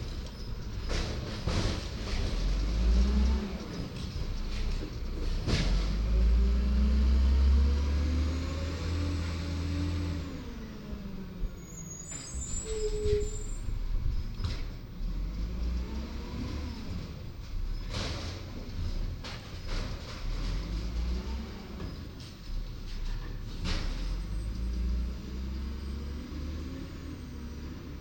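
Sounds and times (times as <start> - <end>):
diesel engine revving: 0.0 - 11.8, 14.9 - 19.1, 19.7 - 22.0, 23.5 - 28.0
brief high squeal: 11.6 - 13.7.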